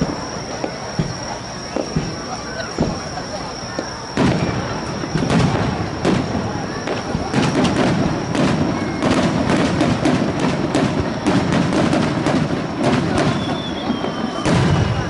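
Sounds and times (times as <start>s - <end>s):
faint falling whistle: 0.0s - 9.4s, 13.0s - 15.0s
fireworks bangs: 0.0s - 15.0s
fireworks crackling: 0.0s - 15.0s.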